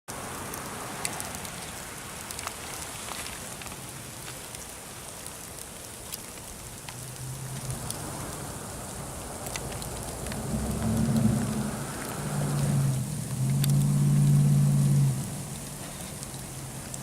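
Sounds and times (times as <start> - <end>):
sleet pellets ticking on hard surfaces: 3.4 - 17.0.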